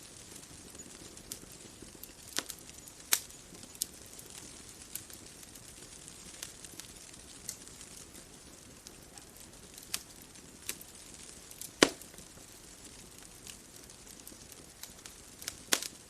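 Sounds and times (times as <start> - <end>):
bonfire crackling and popping: 0.0 - 16.0
fire hissing: 0.0 - 16.0.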